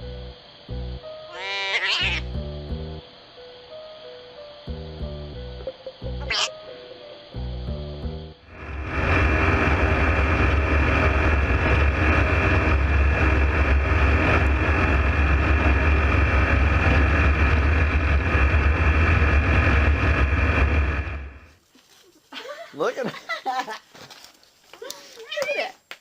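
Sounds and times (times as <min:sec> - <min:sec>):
engine low rumble: 0:00.0 - 0:01.0, 0:02.2 - 0:03.2, 0:04.6 - 0:06.3, 0:07.3 - 0:21.5
high whine: 0:00.0 - 0:21.6.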